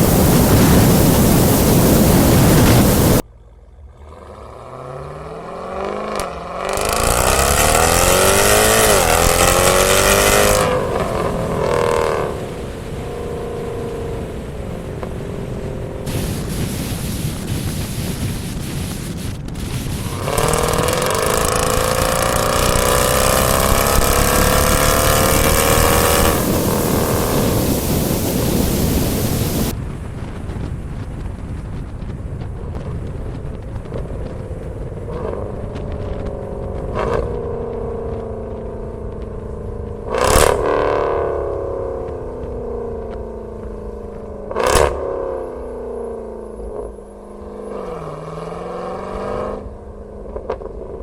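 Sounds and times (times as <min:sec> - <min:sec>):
loud rushing noise: 0:00.0 - 0:03.3, 0:06.7 - 0:32.6
engine rev blip: 0:00.0 - 0:13.9, 0:19.6 - 0:29.7
car engine accelerating: 0:00.0 - 0:29.7, 0:32.6 - 0:51.0.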